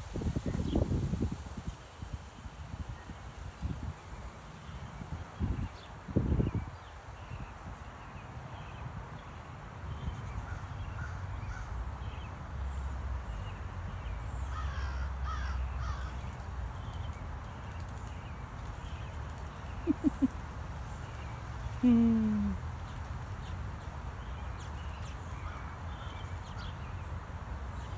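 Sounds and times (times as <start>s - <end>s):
birds calling: 14.5s - 26.8s.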